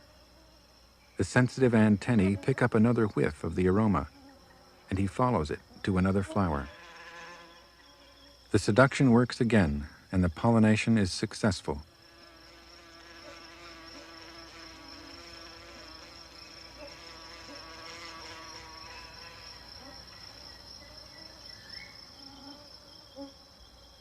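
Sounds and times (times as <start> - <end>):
high-pitched insect trill: 0.0 - 24.0
wasp buzzing in flight: 5.9 - 8.5, 11.8 - 24.0.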